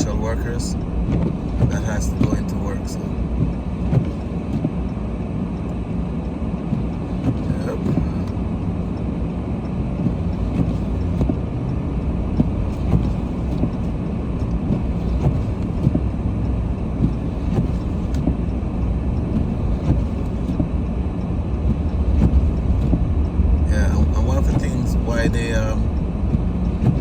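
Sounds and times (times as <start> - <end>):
car rumble from inside cabin: 0.0 - 27.0.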